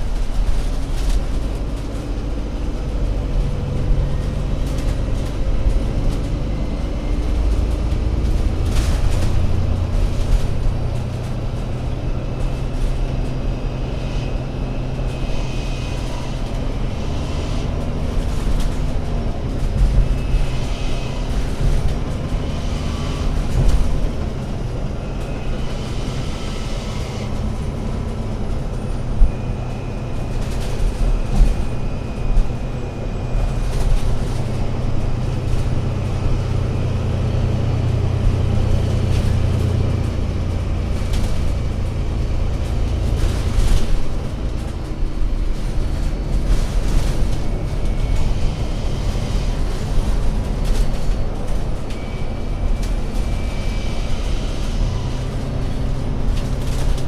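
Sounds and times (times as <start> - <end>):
bus engine rumble: 0.0 - 57.0.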